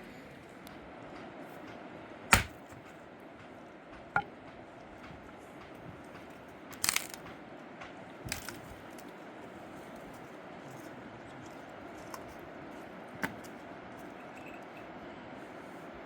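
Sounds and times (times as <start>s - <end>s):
sharp cracks and crunches: 2.3s - 2.8s, 6.7s - 7.3s.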